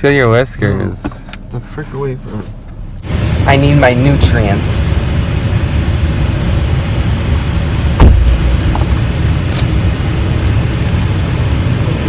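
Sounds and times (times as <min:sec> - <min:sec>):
road vehicle rumbling: 0:00.0 - 0:12.0
loud thump: 0:08.0 - 0:08.9.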